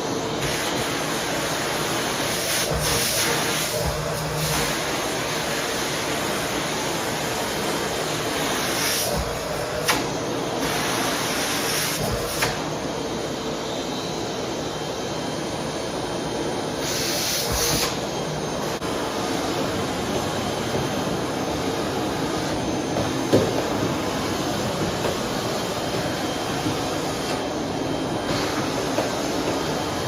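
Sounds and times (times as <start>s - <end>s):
vacuum cleaner running: 0.0s - 30.0s.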